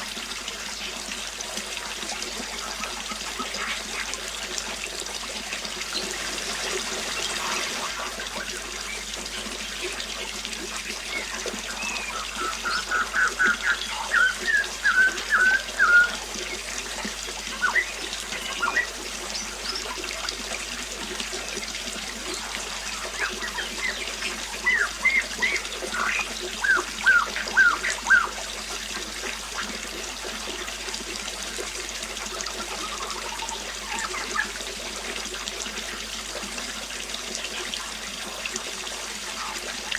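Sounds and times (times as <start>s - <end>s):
water trickling: 0.0s - 39.9s
songbird singing: 11.0s - 20.0s, 22.2s - 28.4s, 32.6s - 34.6s.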